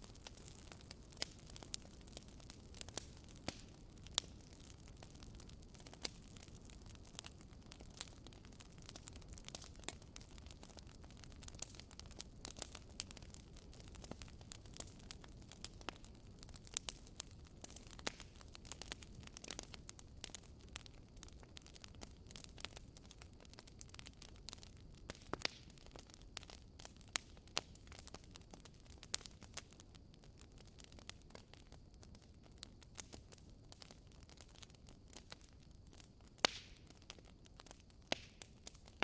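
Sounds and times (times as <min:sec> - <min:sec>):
firewood crackling and popping: 0:00.0 - 0:39.0.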